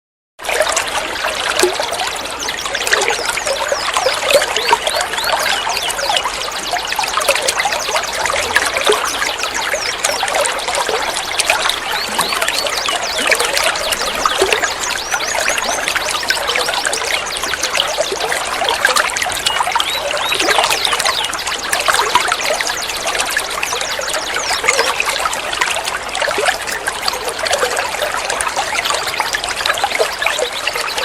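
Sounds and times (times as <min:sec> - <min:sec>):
water trickling and gurgling: 0:00.4 - 0:31.0
high bird chirps: 0:02.5 - 0:10.3.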